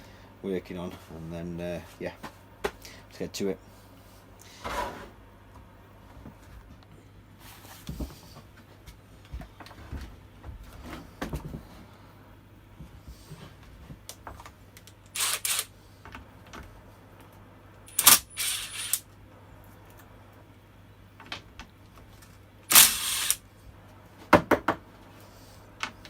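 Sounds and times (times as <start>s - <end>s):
spanner and metal parts rattling: 15.1s - 15.7s, 17.9s - 19.0s, 22.7s - 23.4s.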